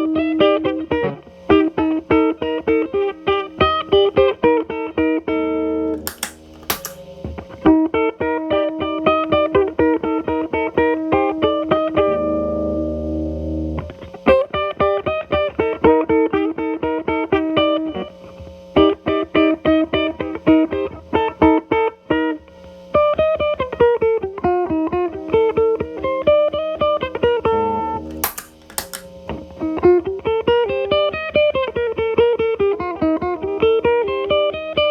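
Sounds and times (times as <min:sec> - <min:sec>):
electric guitar single-note runs: 0:11.8 - 0:14.0, 0:27.4 - 0:28.7.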